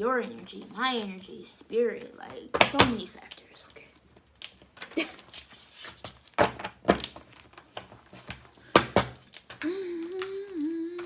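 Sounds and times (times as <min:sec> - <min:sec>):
woman humming: 0:09.6 - 0:11.0.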